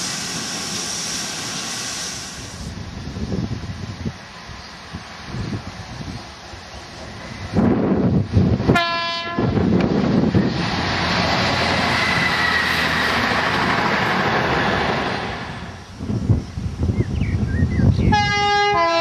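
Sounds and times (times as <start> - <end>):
train rushing past: 0.0 - 16.9
train horn blast: 8.7 - 9.6, 18.1 - 19.0.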